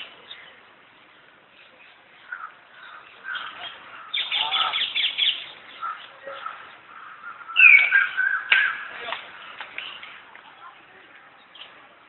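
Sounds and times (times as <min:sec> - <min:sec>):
birds chirping and chattering: 0:00.0 - 0:12.0
loud falling bird call: 0:02.4 - 0:09.0.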